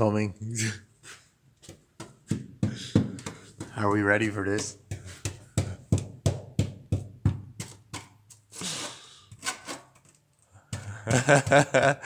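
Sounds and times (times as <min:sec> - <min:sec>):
sharp knocks: 0:02.0 - 0:08.1.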